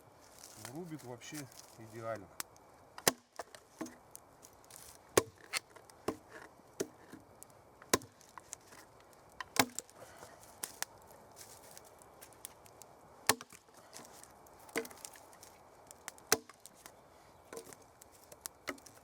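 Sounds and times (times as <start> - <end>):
axe chopping wood: 3.0 - 4.0, 5.2 - 7.2, 7.9 - 8.3, 9.4 - 9.9, 13.3 - 13.7, 14.7 - 15.1, 16.1 - 16.7.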